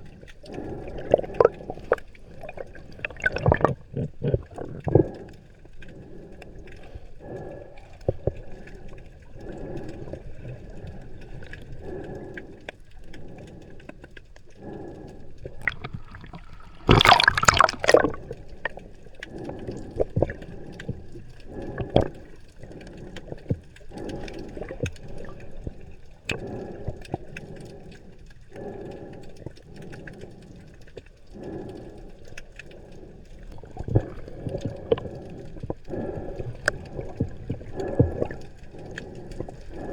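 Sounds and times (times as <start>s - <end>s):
underwater water surges: 0.0s - 39.9s
loud bubbling: 1.0s - 5.1s, 15.4s - 20.4s.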